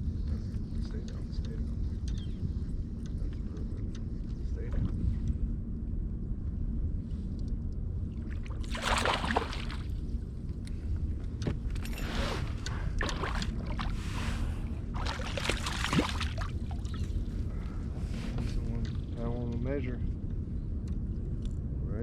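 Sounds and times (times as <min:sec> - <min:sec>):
wind and hull rumble: 0:00.0 - 0:22.0
water splashing around kayak: 0:08.2 - 0:10.2, 0:12.4 - 0:17.2.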